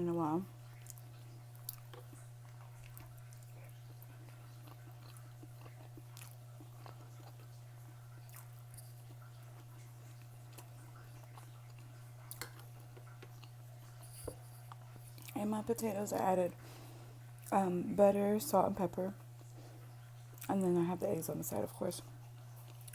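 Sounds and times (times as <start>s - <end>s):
steady low hum: 0.0s - 22.9s
person chewing and eating: 0.6s - 15.4s, 19.2s - 20.6s, 22.2s - 22.9s.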